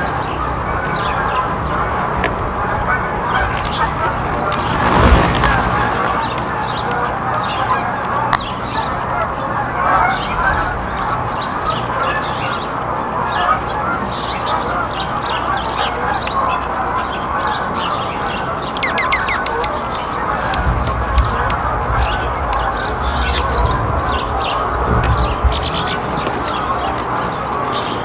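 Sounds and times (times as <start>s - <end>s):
bird chatter: 2.7s - 28.0s
small birds chirping: 2.9s - 28.0s
low rumble: 4.2s - 6.8s
falling bird notes: 4.3s - 6.9s, 17.3s - 26.9s.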